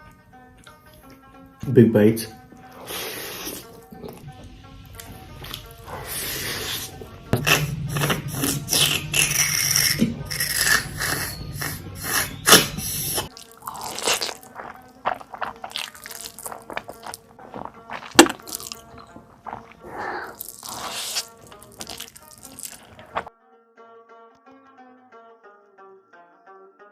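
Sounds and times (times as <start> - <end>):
soft background music: 0.0 - 23.3
crunching and chewing food: 2.5 - 23.3.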